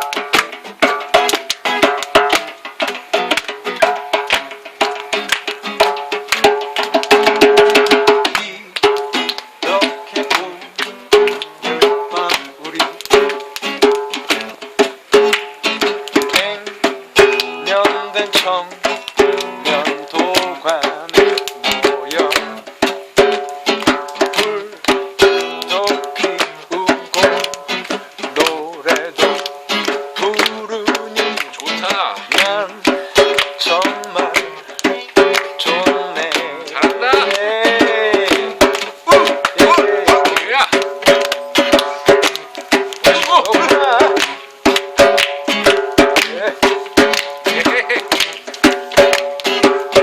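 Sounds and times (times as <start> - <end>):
djembe beating: 0.0 - 50.0
guitar strummed: 0.0 - 50.0
hand drum strokes: 0.0 - 50.0
person singing: 7.8 - 14.0, 16.1 - 22.7, 23.8 - 40.7, 41.5 - 44.3.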